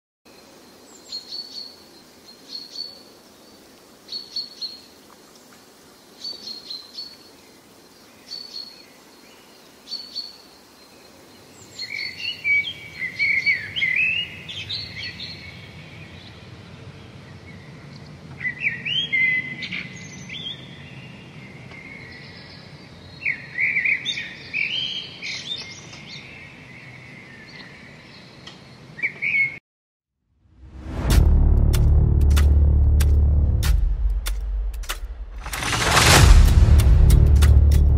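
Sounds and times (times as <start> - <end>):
low steady background noise: 0.3 - 29.2
birds chirping and singing: 6.2 - 29.6.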